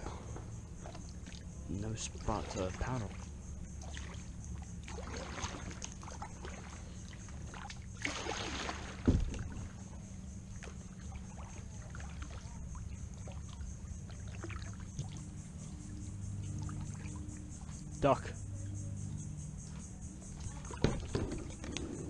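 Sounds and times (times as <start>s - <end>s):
water dripping and splashing: 0.8s - 9.9s, 10.5s - 17.9s.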